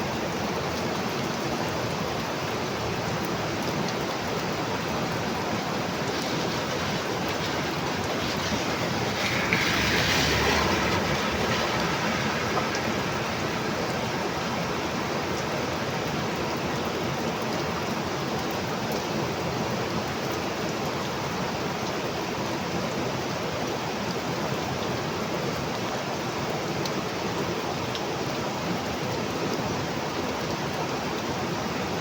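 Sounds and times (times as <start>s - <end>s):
heavy rain hissing: 1.2s - 18.4s.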